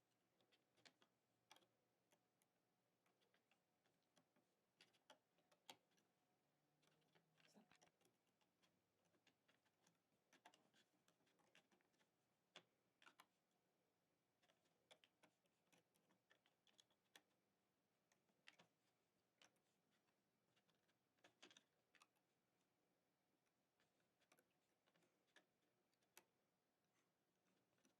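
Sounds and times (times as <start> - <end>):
plastic loom clicks and taps: 0.4 - 1.7.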